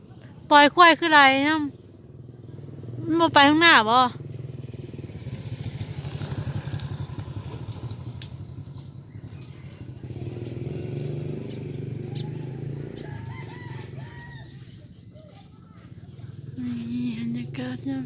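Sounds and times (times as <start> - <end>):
bird chirps: 7.6 - 18.0
rooster crowing: 9.1 - 10.7, 11.9 - 14.7.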